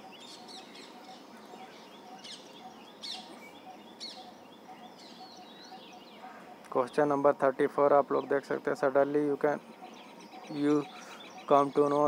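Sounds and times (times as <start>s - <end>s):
birds chirping: 0.0s - 12.0s
faint background hiss: 0.0s - 12.0s.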